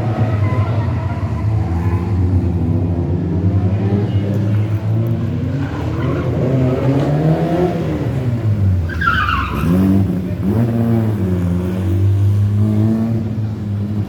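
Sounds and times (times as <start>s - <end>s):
high tyre squeal: 0.0s - 2.6s, 5.3s - 7.8s, 8.8s - 10.1s
rally car engine revving: 0.0s - 14.0s.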